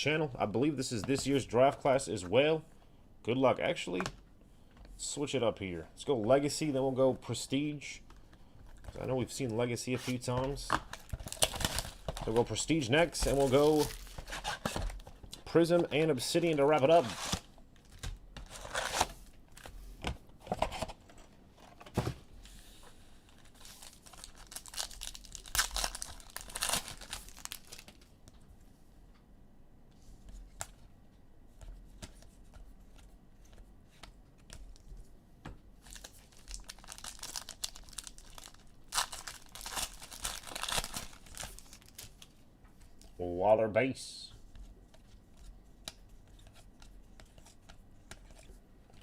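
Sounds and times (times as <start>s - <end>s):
wrappers tearing and crinkling: 10.9s - 15.0s, 16.7s - 19.2s, 23.3s - 28.1s, 35.8s - 42.3s.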